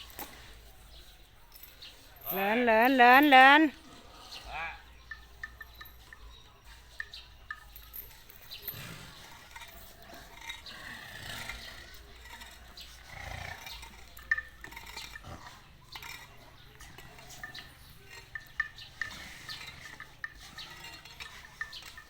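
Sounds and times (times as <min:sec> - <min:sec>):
elephants moving and breathing: 0:00.0 - 0:22.0.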